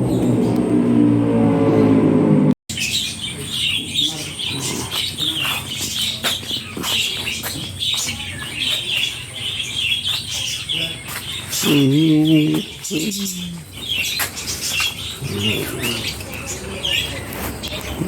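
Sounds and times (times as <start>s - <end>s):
small birds chirping: 0.0s - 1.0s, 2.7s - 18.0s.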